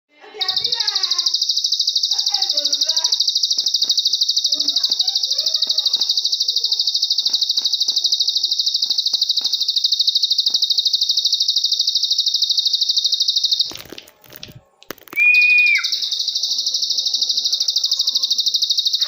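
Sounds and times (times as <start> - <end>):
bird high rapid trill: 0.4 - 13.8, 15.2 - 19.0
clicks: 3.1 - 11.0.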